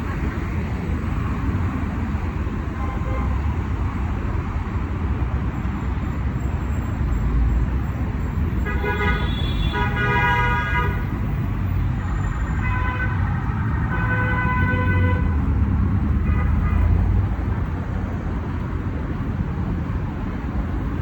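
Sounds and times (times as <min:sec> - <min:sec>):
road traffic: 0:00.0 - 0:21.0
car horns honking: 0:08.6 - 0:11.1, 0:12.1 - 0:15.4.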